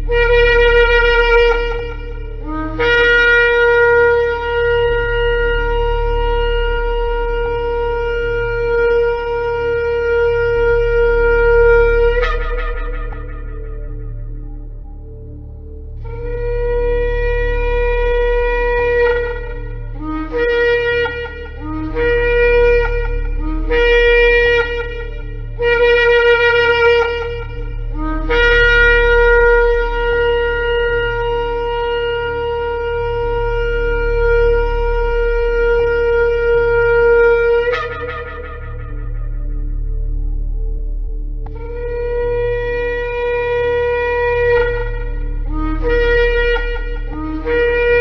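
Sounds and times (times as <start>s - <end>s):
shofar blasts: 0.0s - 48.0s.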